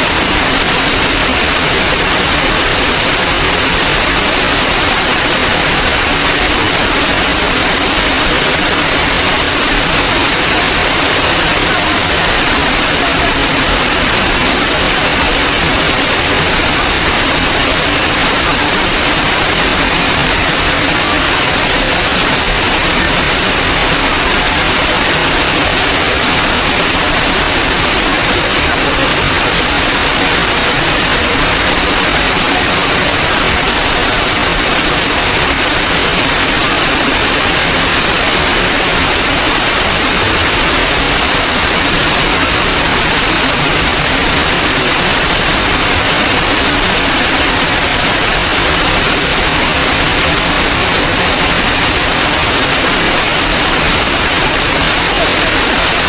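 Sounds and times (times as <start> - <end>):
waterfall water rushing: 0.0 - 56.0.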